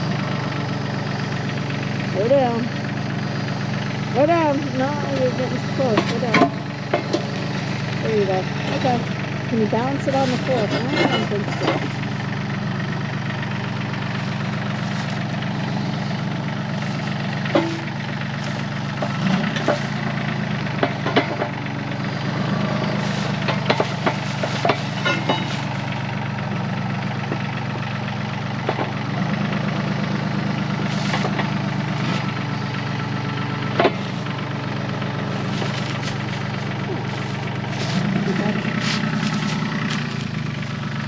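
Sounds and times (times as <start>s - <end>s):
tractor diesel engine running: 0.0s - 41.0s
sharp knocks and clanks: 5.1s - 7.4s, 9.9s - 12.0s, 16.8s - 21.7s, 22.3s - 26.1s, 28.6s - 29.0s, 33.7s - 34.5s.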